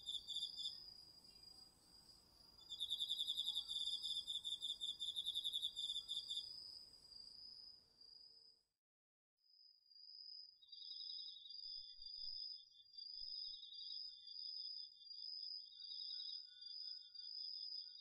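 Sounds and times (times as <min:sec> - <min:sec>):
insect high-pitched trill: 0:00.0 - 0:01.6, 0:02.4 - 0:06.6
cricket pulsing trill: 0:00.0 - 0:08.5.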